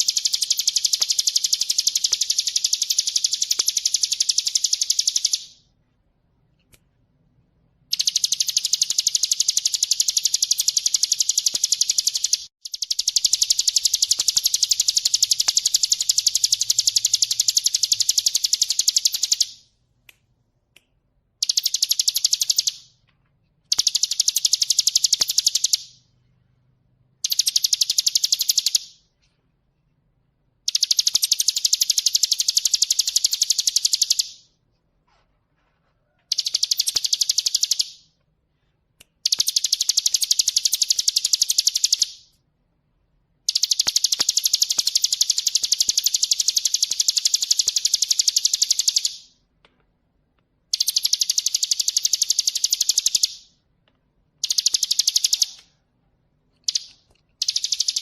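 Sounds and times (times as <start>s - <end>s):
bird singing rapid high trill: 0.0s - 5.6s, 7.9s - 19.6s, 21.4s - 22.9s, 30.7s - 34.4s, 36.3s - 38.0s, 50.7s - 53.5s, 56.6s - 58.0s.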